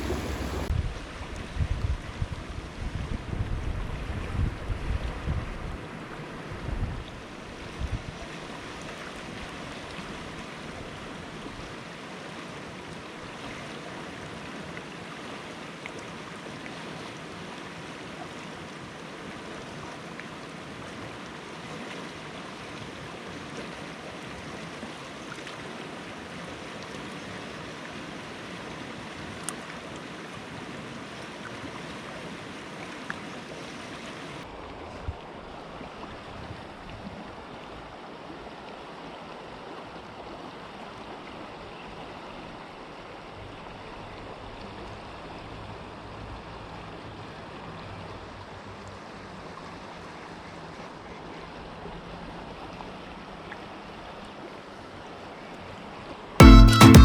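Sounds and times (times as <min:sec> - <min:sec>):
creek rapids rushing: 0:00.0 - 0:00.7
wind bumps on microphone: 0:00.0 - 0:05.8.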